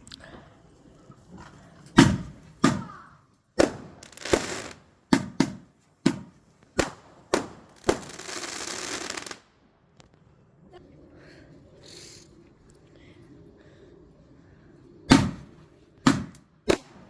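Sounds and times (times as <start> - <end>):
fireworks bangs: 3.6 - 9.4
fireworks crackling: 3.6 - 10.2.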